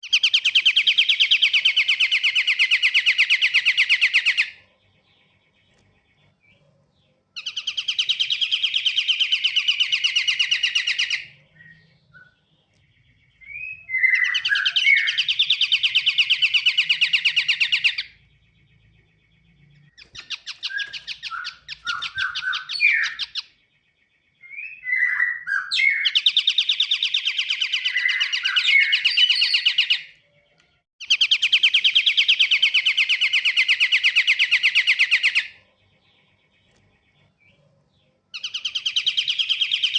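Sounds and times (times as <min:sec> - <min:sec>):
sliding bird chirps: 0:00.0 - 0:23.6
bird dry trills: 0:00.0 - 0:39.9.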